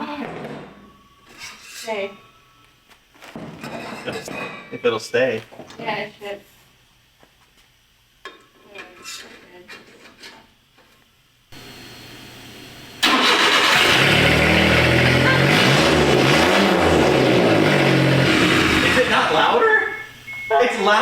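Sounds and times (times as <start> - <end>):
truck engine running loud: 11.6 - 19.6.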